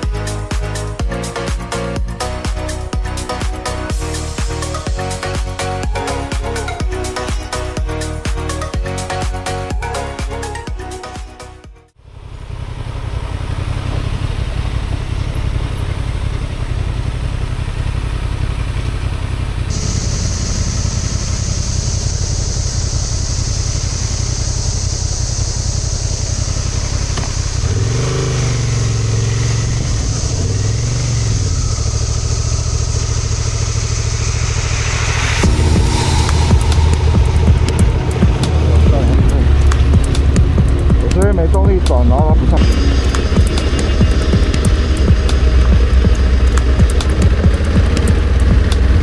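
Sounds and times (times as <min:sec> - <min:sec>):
motorcycle engine revving: 0:11.9 - 0:49.0
steady high-pitched hiss: 0:19.7 - 0:28.0.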